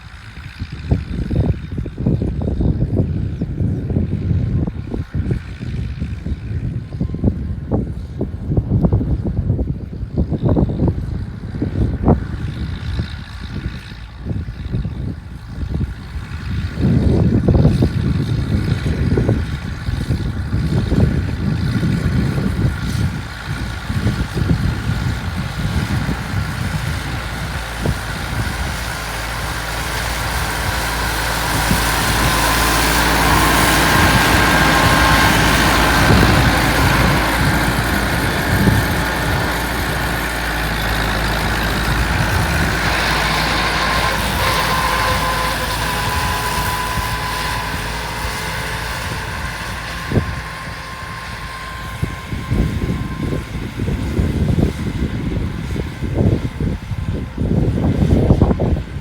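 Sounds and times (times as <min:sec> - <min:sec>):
tractor diesel engine running: 0:00.0 - 0:59.0
rushing noise: 0:23.2 - 0:53.9.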